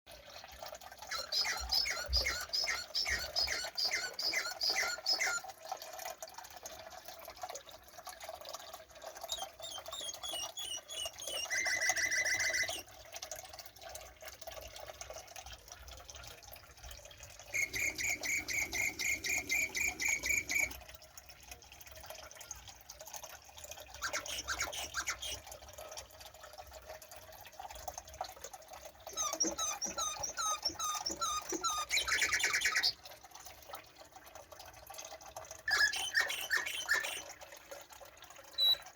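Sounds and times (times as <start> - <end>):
birds singing trills and chirps: 1.1 - 5.5, 9.2 - 12.9, 17.5 - 20.7, 24.0 - 25.4, 29.1 - 33.0, 35.7 - 37.3, 38.6 - 38.8.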